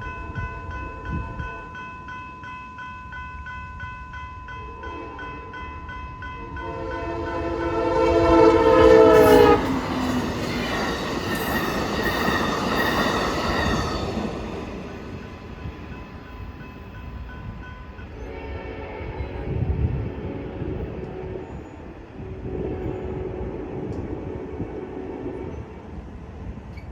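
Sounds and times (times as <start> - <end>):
crossing bells ringing: 0.0 - 18.3
train rumbling by: 0.0 - 26.9
train horn: 6.5 - 14.7, 18.1 - 26.0.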